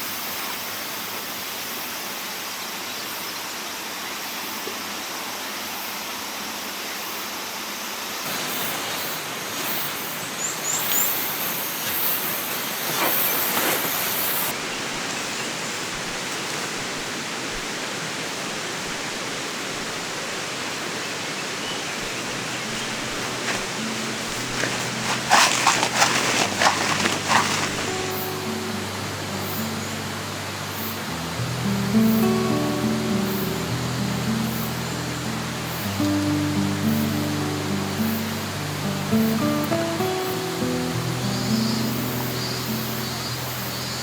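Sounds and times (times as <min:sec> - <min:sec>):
river water flowing: 0:07.5 - 0:44.0
brief rustles: 0:10.6 - 0:14.5, 0:22.2 - 0:29.0.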